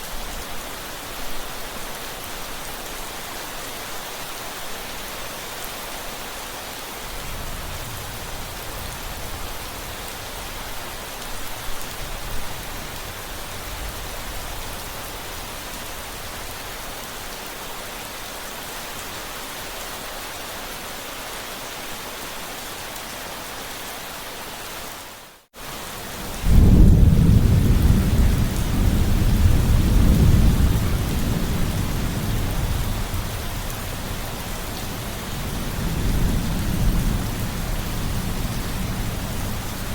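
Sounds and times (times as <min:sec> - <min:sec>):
steady rain: 0:00.0 - 0:39.9
thunder rumbling: 0:26.2 - 0:39.9.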